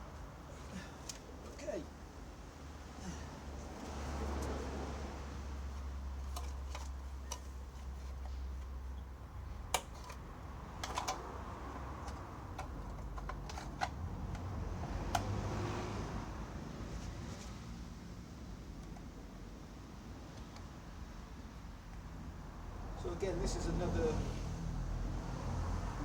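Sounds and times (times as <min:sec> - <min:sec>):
hands clicking and tapping parts: 0:01.0 - 0:01.4, 0:05.7 - 0:15.4.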